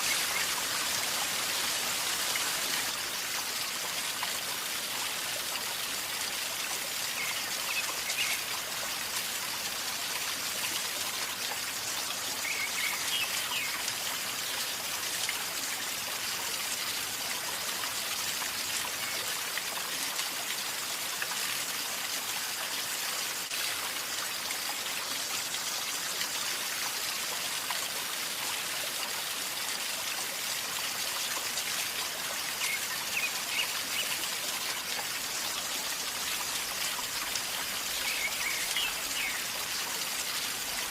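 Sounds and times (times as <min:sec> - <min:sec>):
river gurgling and trickling: 0:00.0 - 0:40.9.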